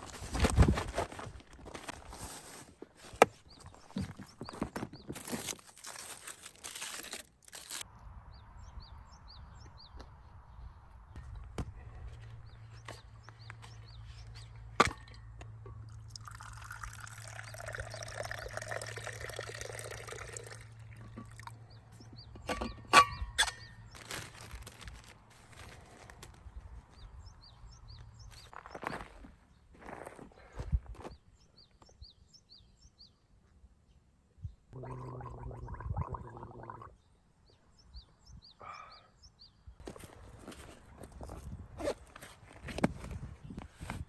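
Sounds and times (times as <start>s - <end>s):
liquid pouring: 15.9s - 21.0s, 34.8s - 36.9s.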